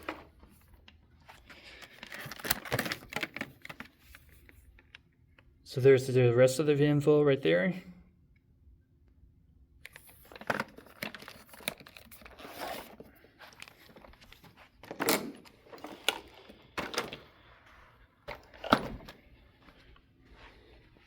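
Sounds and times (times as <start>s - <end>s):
vacuum cleaner handling noises: 10.3s - 17.6s, 18.2s - 19.3s.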